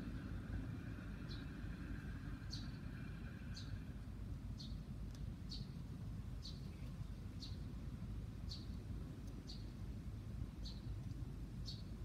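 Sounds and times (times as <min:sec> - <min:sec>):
low steady rumble: 0:00.0 - 0:12.0
small bird chirping: 0:00.9 - 0:03.9, 0:04.6 - 0:05.8, 0:06.4 - 0:07.7, 0:08.4 - 0:09.8, 0:10.6 - 0:12.0.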